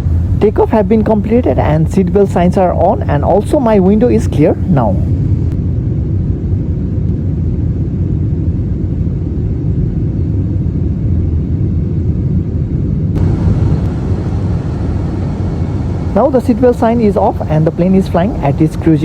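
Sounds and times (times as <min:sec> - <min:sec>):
jet engine cabin rumble: 0:00.0 - 0:19.0
airflow hiss: 0:13.2 - 0:19.0.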